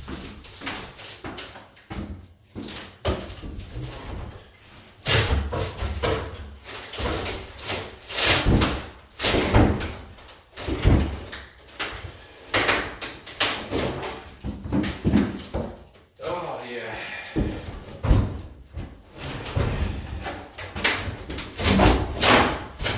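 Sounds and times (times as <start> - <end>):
wooden cabinet being smashed: 5.0 - 16.0, 17.4 - 22.9.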